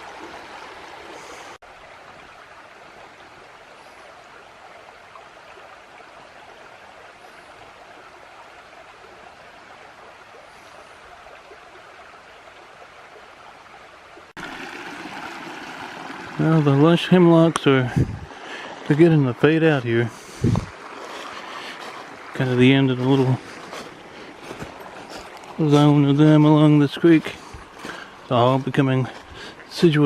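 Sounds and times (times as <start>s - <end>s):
water rushing over rock: 14.4s - 30.0s.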